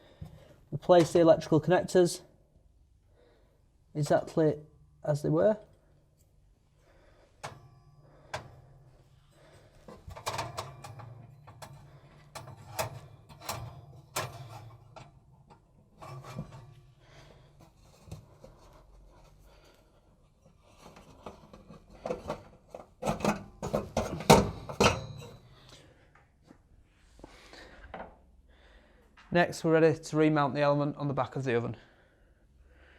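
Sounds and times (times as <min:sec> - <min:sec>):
connectors clicking and rubbing: 0:08.2 - 0:16.8.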